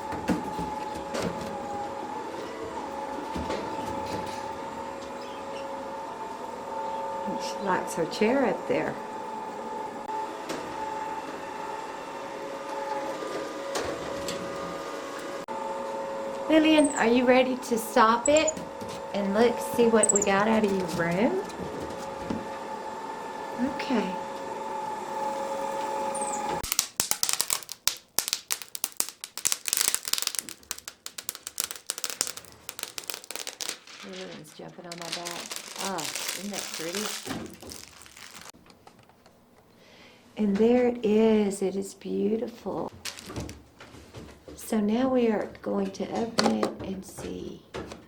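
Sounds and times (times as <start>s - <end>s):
clicking and crackling: 26.6s - 39.0s.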